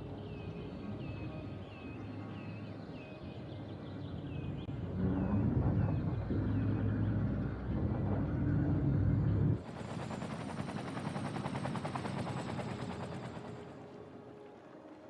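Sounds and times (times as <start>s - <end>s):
heavy vehicle rumble: 4.6s - 9.6s.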